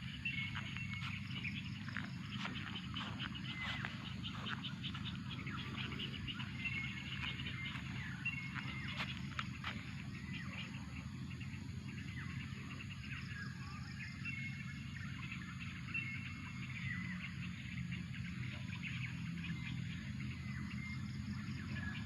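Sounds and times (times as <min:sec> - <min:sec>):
low background rumble: 0:00.0 - 0:13.3
birds chirping and whistling: 0:00.0 - 0:22.0.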